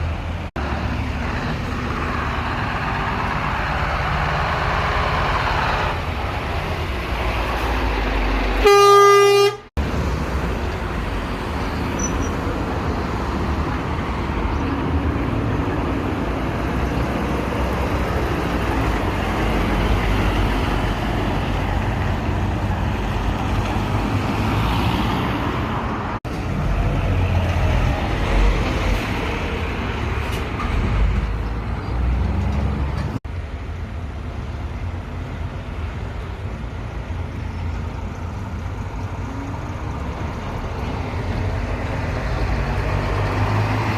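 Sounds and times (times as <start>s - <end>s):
passing road traffic: 0.0s - 43.9s
truck horn blast: 8.6s - 9.7s.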